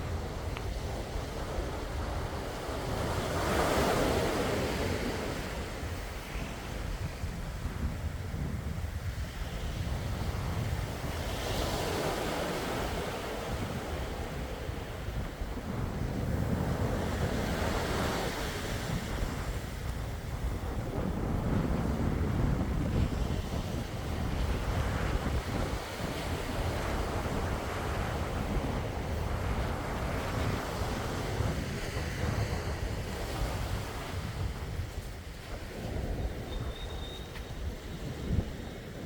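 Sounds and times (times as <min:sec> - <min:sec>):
sea waves washing ashore: 0:00.0 - 0:39.0
wind rumbling on microphone: 0:00.0 - 0:39.0.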